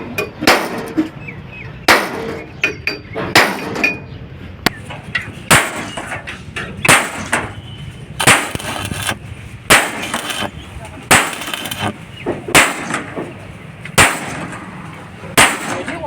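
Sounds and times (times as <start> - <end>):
hammer striking steel: 1.9 - 4.0, 4.7 - 7.6, 8.2 - 10.5, 11.1 - 13.3, 14.0 - 14.8, 15.4 - 16.0.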